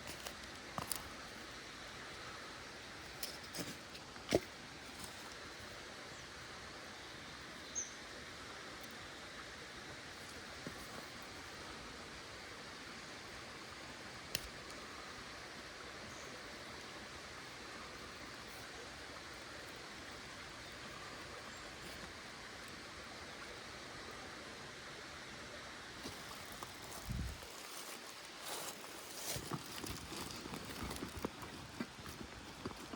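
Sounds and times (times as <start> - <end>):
stream flowing: 0.0 - 32.9
rustling: 26.0 - 32.9.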